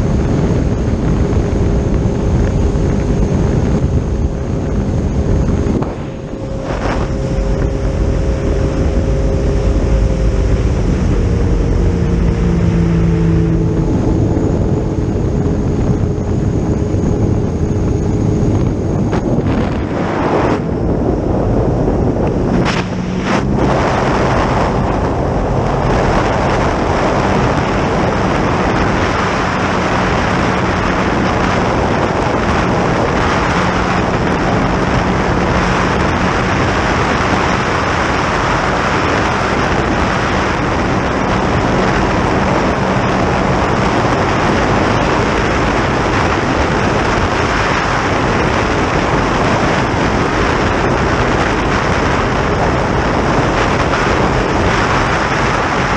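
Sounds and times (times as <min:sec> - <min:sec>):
boat engine droning: 0:00.0 - 0:55.9
water rushing past boat: 0:00.0 - 0:55.9
wind on microphone: 0:00.0 - 0:55.9.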